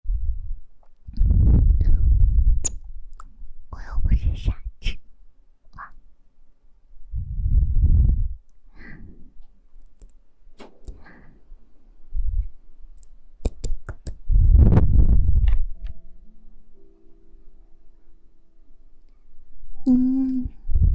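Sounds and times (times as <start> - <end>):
muffled rubbing thuds on microphone: 14.3 - 15.7.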